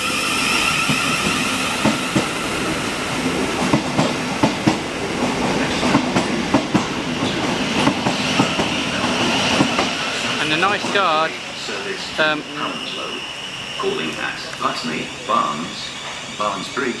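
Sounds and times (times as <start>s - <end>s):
train electric traction whine: 0.0s - 17.0s
train wheels clicking over rail joints: 0.0s - 17.0s.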